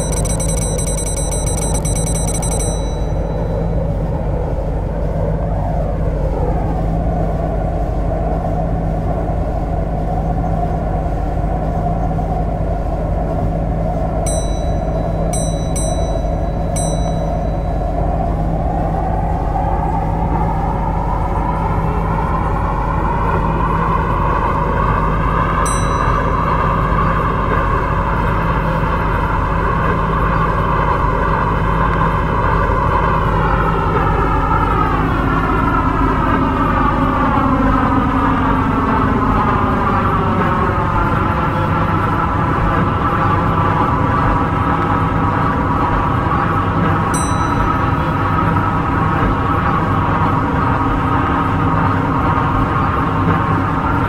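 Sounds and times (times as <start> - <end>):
short high ringing pings: 0.0 - 3.9, 14.3 - 18.2, 25.7 - 27.3, 47.2 - 48.2
train rolling drone: 0.0 - 54.0.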